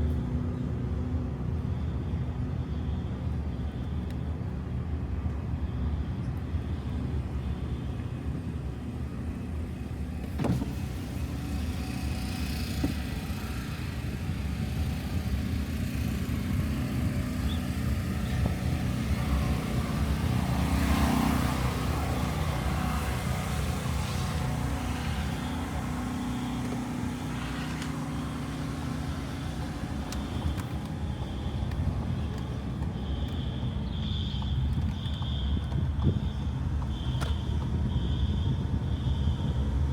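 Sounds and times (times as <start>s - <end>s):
car engine and road hum: 0.0s - 39.9s.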